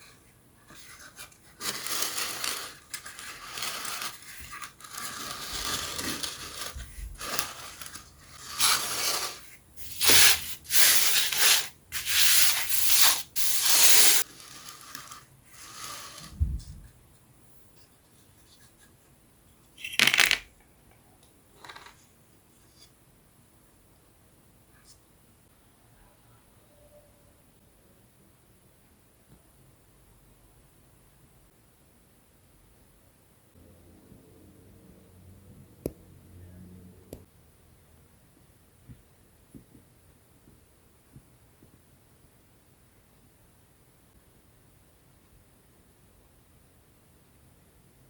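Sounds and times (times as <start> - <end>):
wooden pieces scraping: 1.6 - 16.4, 19.8 - 20.5.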